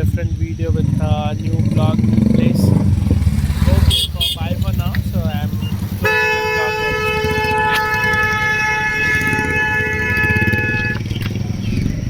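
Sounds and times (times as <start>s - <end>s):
low rumble of engines: 0.0s - 12.0s
vehicle horn chord: 3.7s - 11.1s.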